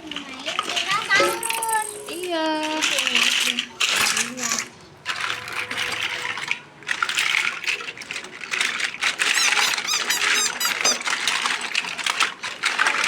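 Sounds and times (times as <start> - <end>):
plastic toys clattering: 0.0 - 13.0
high squeaks: 9.2 - 11.4.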